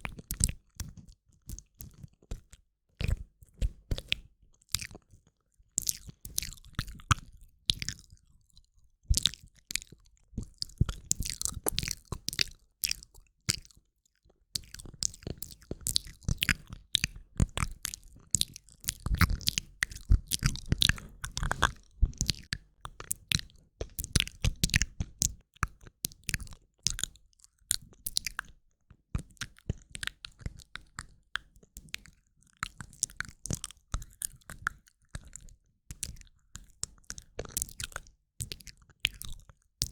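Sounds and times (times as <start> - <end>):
mouth clicks and smacks: 5.8 - 8.1, 14.6 - 28.5.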